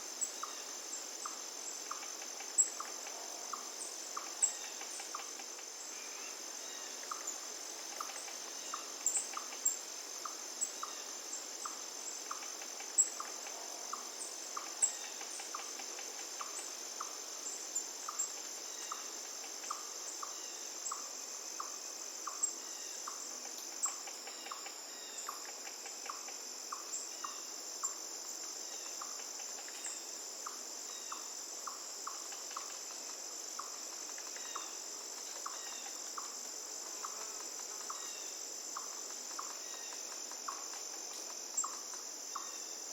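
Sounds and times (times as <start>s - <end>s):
insects trilling: 0.0s - 42.9s.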